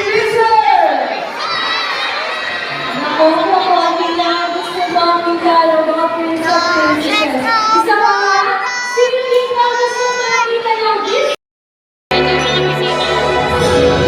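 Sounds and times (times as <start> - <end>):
children singing together: 6.3 - 9.0.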